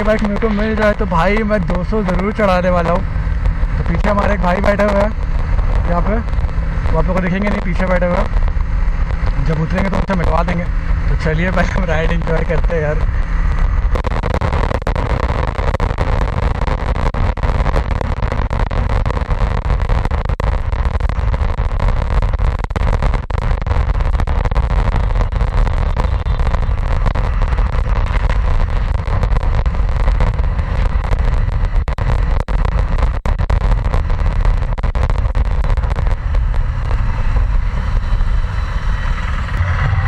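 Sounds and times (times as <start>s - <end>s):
motorcycle engine: 0.0s - 12.3s, 12.9s - 14.0s, 35.7s - 40.0s.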